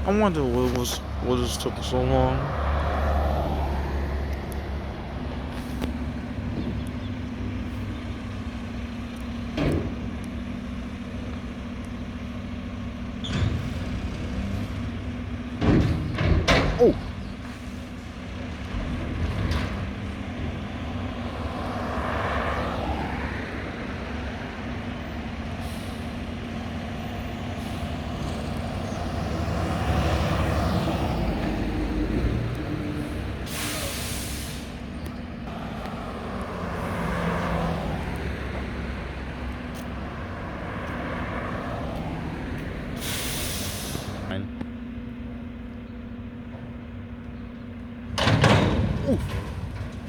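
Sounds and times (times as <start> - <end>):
air brake hiss: 33.5 - 34.8, 43.0 - 44.3.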